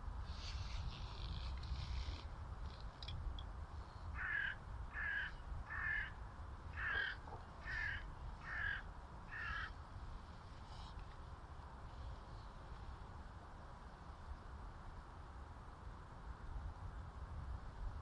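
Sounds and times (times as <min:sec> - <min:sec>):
crow cawing: 0:04.2 - 0:09.8.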